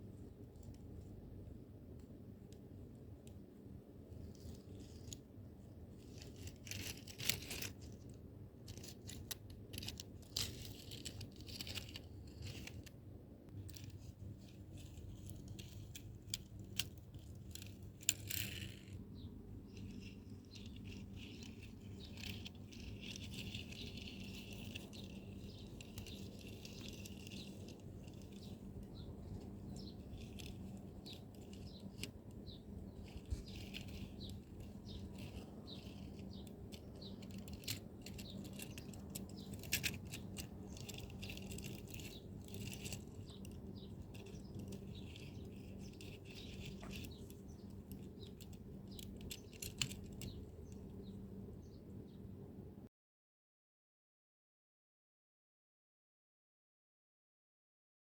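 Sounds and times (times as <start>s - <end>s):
faint steady hum: 0.0s - 52.9s
toy trucks clicking and rattling: 6.0s - 12.9s, 13.6s - 19.1s, 19.7s - 51.0s.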